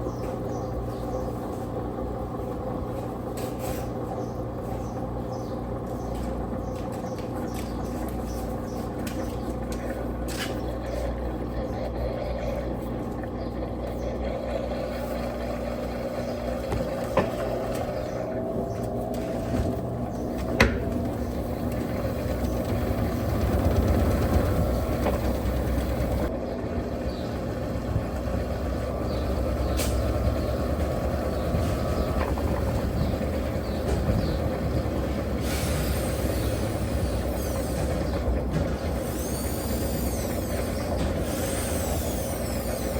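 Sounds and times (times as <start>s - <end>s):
washing machine motor hum: 0.0s - 42.9s
washing machine clicks: 20.3s - 23.0s.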